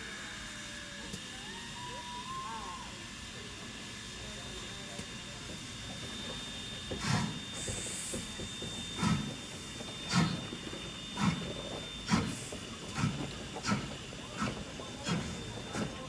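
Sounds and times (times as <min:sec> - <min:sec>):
steam locomotive chuffing: 0:00.0 - 0:16.0
steam hissing: 0:04.2 - 0:16.0.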